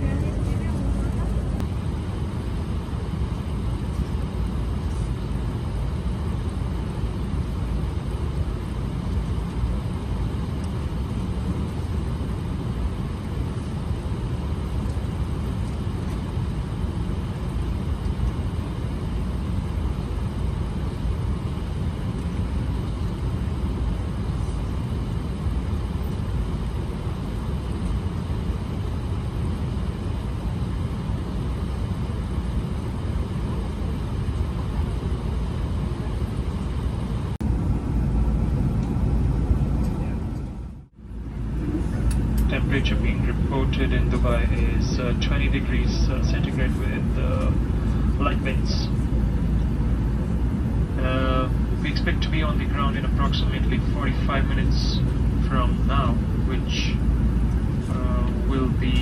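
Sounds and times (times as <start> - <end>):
airplane cabin noise: 0.0 - 59.0.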